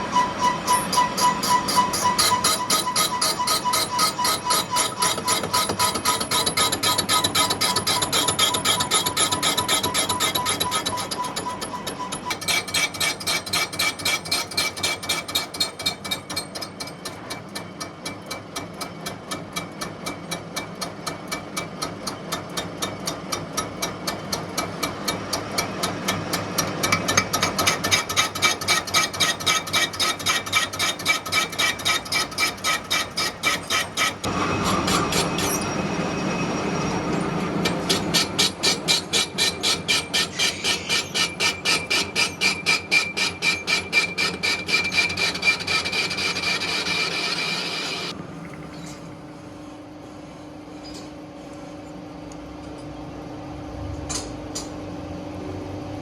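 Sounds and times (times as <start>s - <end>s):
rough grinding noise: 0.0s - 17.3s, 26.7s - 48.2s
metalworking machinery knocking: 0.7s - 36.0s, 37.0s - 48.1s.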